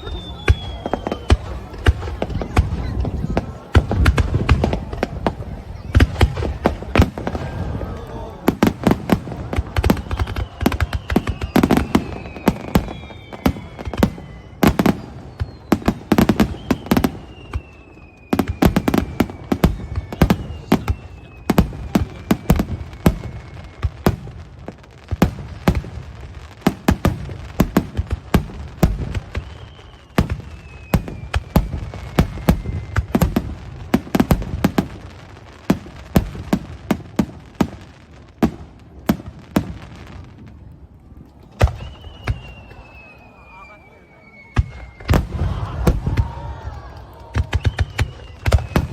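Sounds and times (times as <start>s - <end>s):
firework whistles falling in pitch: 0.0s - 1.6s, 9.8s - 24.3s, 28.8s - 33.6s, 41.5s - 48.9s
fireworks bangs and crackles: 0.0s - 48.9s.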